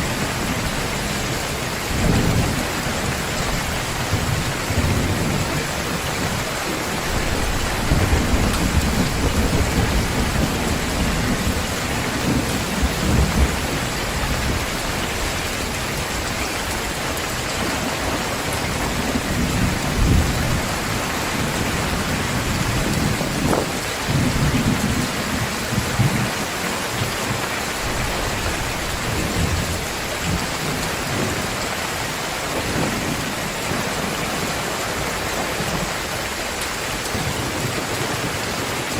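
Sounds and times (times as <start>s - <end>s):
low rolling thunder: 0.0s - 34.5s
heavy downpour: 0.0s - 38.9s.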